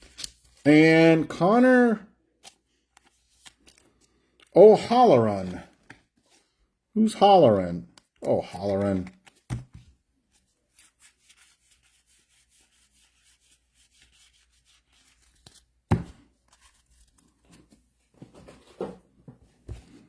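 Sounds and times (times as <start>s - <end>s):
card wrappers rustling and tearing: 0.0s - 0.7s, 2.4s - 6.5s, 7.8s - 9.6s.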